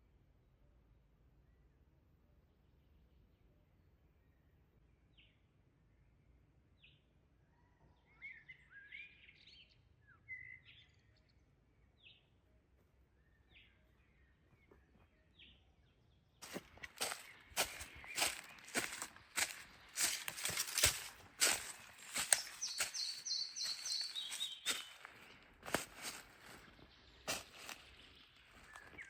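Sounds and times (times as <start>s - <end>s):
bird calling: 16.4s - 26.6s
rustling in dry leaves: 16.4s - 29.0s.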